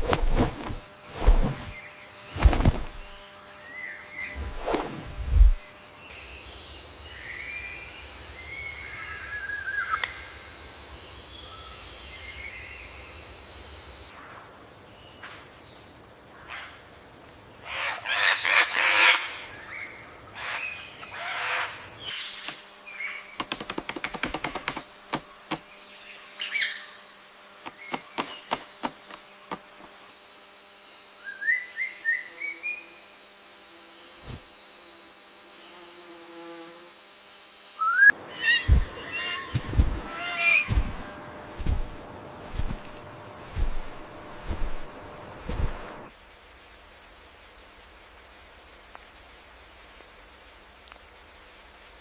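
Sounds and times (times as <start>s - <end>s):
steady high buzz: 0.0s - 14.1s, 24.6s - 46.1s
low thumps: 38.7s - 39.0s, 39.6s - 40.1s.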